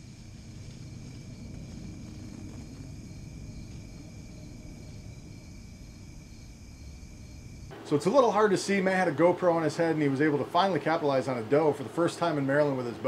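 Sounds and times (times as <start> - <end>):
low rumble: 0.0 - 7.7
crickets and insects trilling: 0.0 - 13.0.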